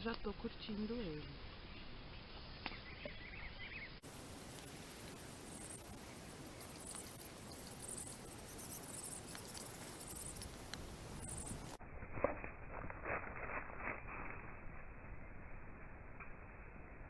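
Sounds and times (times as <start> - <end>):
campfire crackling and popping: 4.0 - 15.2.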